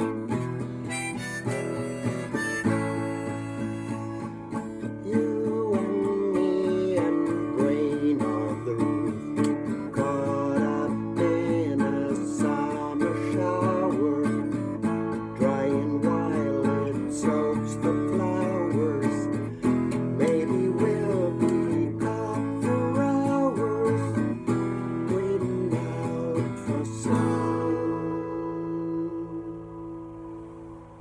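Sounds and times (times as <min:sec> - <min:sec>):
wavering melody line: 0:00.0 - 0:04.7
acoustic guitar strumming: 0:00.0 - 0:31.0.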